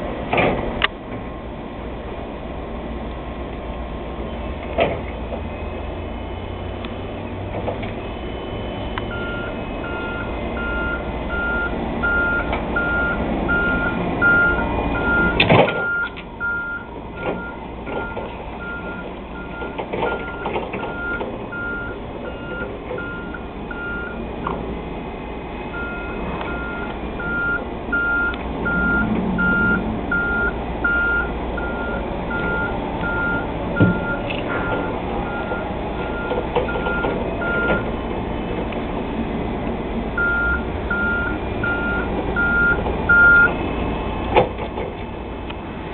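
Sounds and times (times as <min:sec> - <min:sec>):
reach truck travel alarm beeping: 0:05.4 - 0:24.6, 0:25.4 - 0:38.1, 0:40.1 - 0:44.3.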